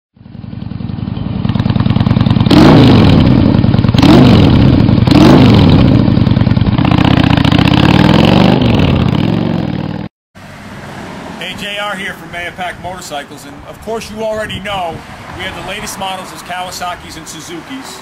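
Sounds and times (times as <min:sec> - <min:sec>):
motorcycle engine revving: 0:00.2 - 0:11.4.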